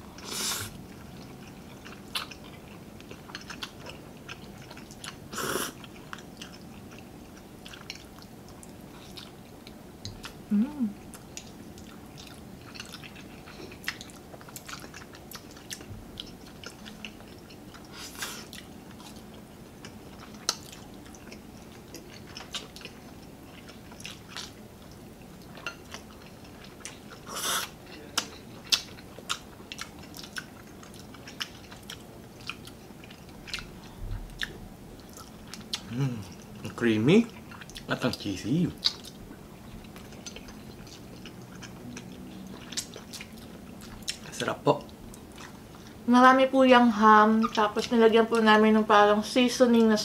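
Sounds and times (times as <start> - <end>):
people chewing: 0.0 - 46.0
slurping noodles: 27.3 - 27.7.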